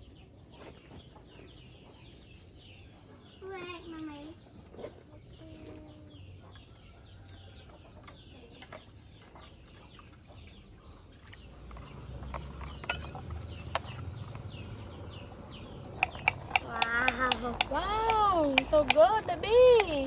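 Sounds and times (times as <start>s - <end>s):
chickens clucking: 0.0s - 20.0s
sharp clicks: 15.8s - 20.0s.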